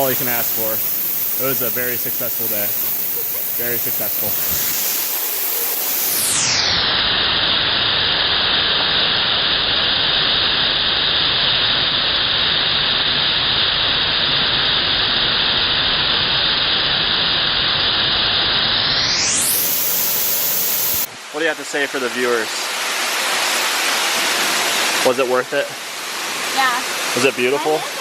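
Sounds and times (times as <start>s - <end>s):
waterfall rushing: 0.0s - 7.6s, 19.2s - 28.0s.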